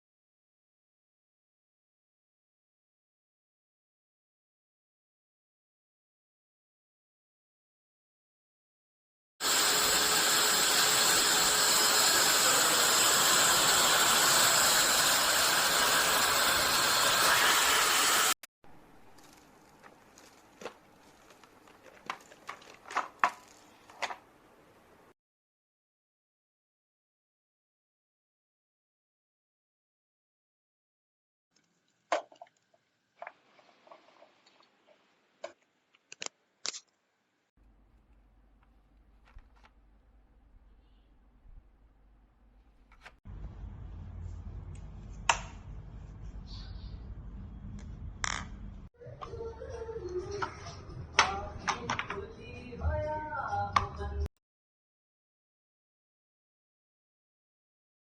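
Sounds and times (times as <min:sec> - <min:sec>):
vacuum cleaner running: 0:09.4 - 0:18.4.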